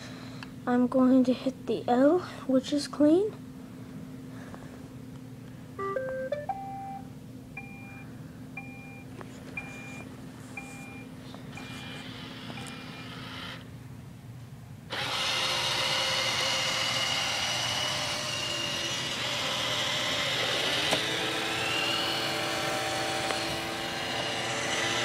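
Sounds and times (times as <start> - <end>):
robot vacuum beep: 5.8 - 7.0, 7.6 - 8.0, 8.6 - 9.0, 10.6 - 13.0
robot vacuum motor whining: 11.5 - 13.6, 14.9 - 25.0.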